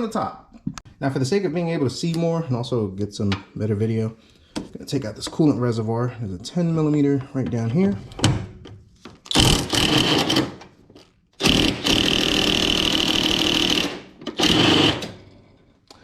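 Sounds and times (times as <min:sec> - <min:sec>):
cordless power tool whining: 0:09.3 - 0:10.5, 0:11.4 - 0:15.3.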